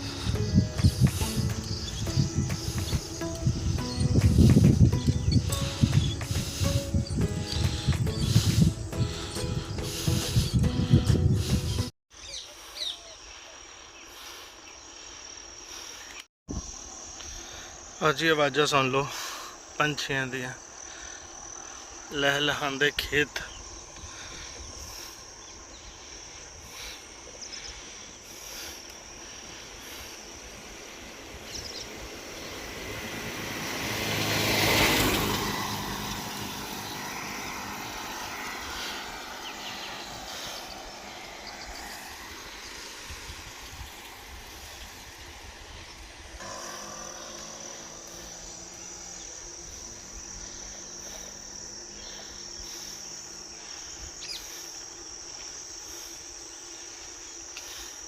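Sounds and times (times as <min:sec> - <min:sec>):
motor vehicle passing: 0:00.0 - 0:11.9, 0:30.2 - 0:55.0
crickets trilling: 0:00.0 - 0:58.0.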